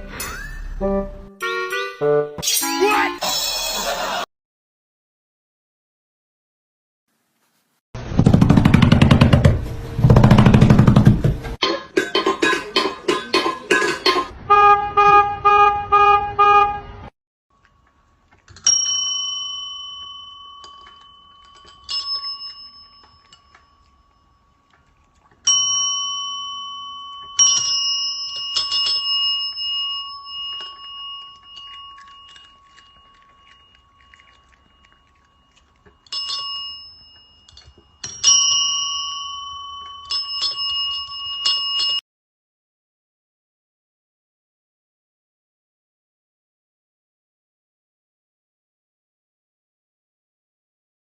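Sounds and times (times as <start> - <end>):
small metal bell ringing: 18.6 - 24.5, 25.5 - 42.0.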